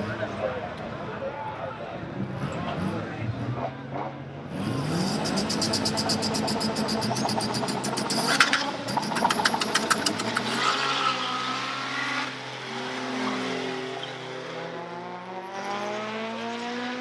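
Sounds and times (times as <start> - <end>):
drag car engine accelerating: 4.4 - 17.0.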